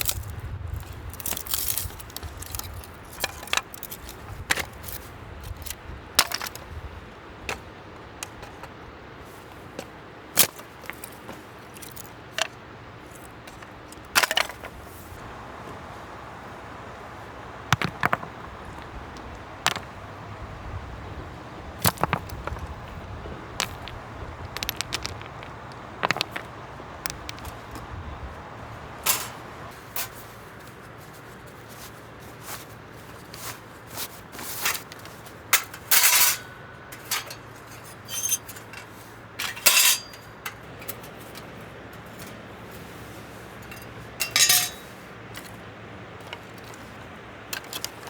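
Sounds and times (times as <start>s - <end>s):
steady background hiss: 0.0s - 48.0s
metal cookware clinking: 35.6s - 41.4s, 43.6s - 45.0s.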